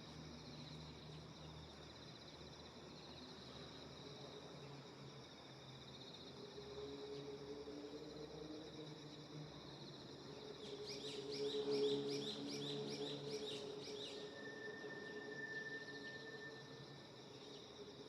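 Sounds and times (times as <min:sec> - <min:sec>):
insects droning: 0:00.0 - 0:18.0
thin whistle-like tone: 0:10.8 - 0:17.2.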